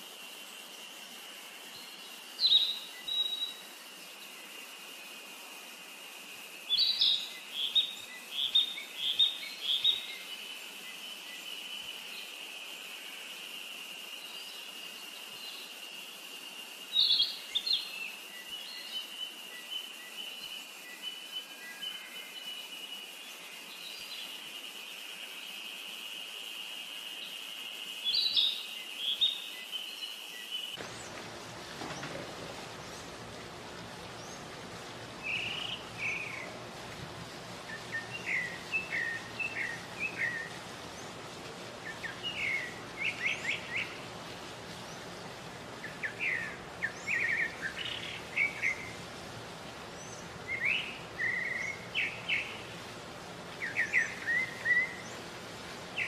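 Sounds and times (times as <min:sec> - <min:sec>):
broad hiss: 0:00.0 - 0:56.0
birds calling with high notes: 0:34.1 - 0:36.7.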